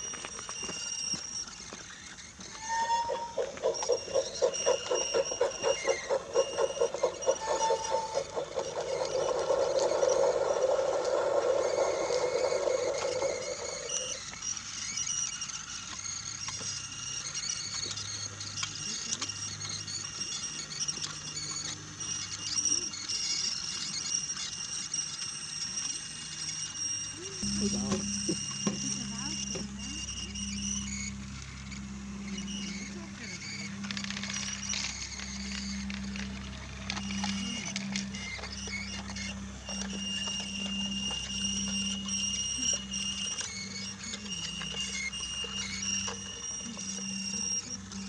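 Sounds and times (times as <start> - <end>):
toy train rolling on wooden track: 0.0 - 31.4, 32.5 - 48.0
low hum: 2.4 - 14.3, 27.2 - 48.0.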